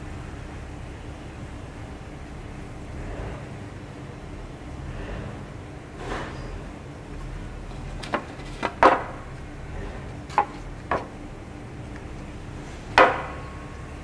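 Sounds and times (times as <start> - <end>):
objects knocking on wooden plank: 7.7 - 9.3, 10.3 - 11.2, 13.0 - 13.4.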